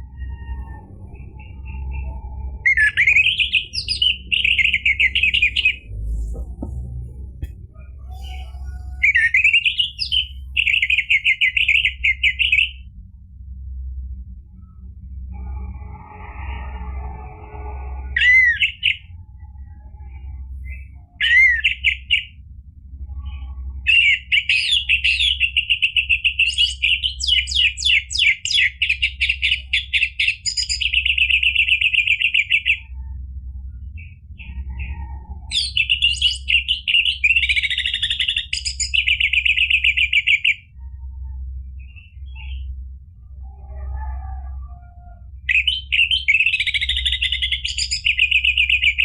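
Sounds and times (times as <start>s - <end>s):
low hum: 0.0s - 24.0s, 30.1s - 49.0s
bird singing trilled notes: 0.2s - 6.4s, 8.0s - 12.8s, 23.2s - 32.9s, 35.5s - 42.8s, 45.5s - 49.0s.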